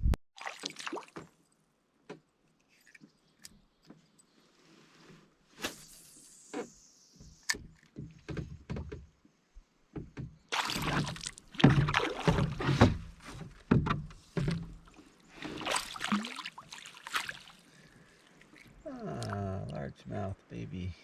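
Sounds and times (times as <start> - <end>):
water splashing: 0.4 - 1.4, 10.5 - 13.4, 14.4 - 19.9
gear knocking against canoe hull: 9.9 - 15.6.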